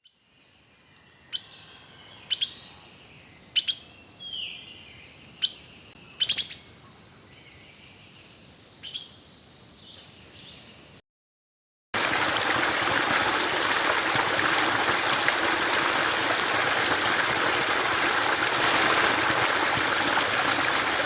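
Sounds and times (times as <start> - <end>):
background bird calls: 0.0 - 11.0.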